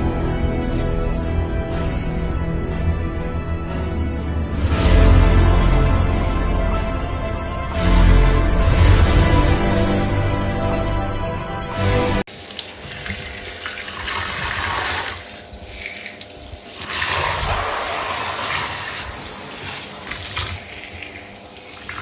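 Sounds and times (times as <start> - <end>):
background music: 0.0 - 15.2
running water: 12.3 - 22.0.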